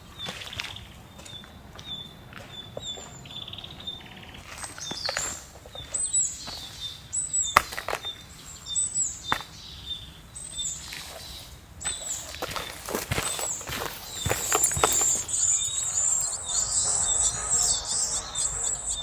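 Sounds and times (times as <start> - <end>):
bird high falling call: 13.3 - 19.0.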